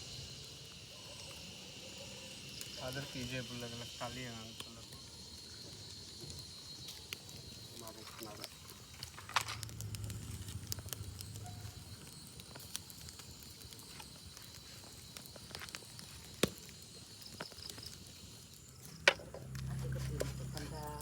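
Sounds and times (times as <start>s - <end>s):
fire crackling and popping: 0.0s - 21.0s
low rumble: 9.5s - 11.5s.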